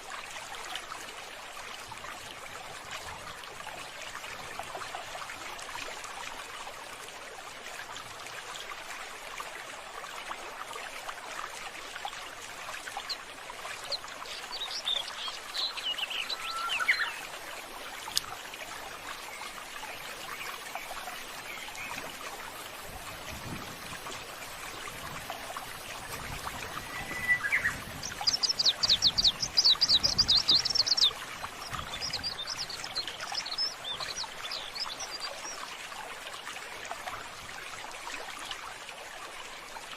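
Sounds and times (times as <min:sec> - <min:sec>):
water trickling: 0:00.0 - 0:39.9
birds chirping: 0:13.8 - 0:17.3, 0:26.5 - 0:35.3
bird trilling: 0:16.0 - 0:17.2.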